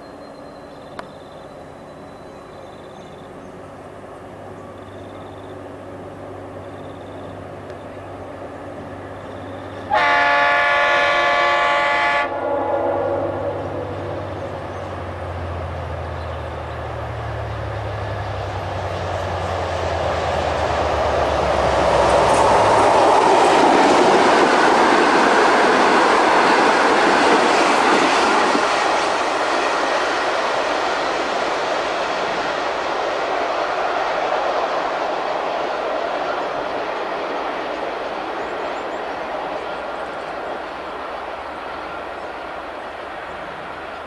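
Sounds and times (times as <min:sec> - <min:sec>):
locomotive horn: 0:09.9 - 0:14.5.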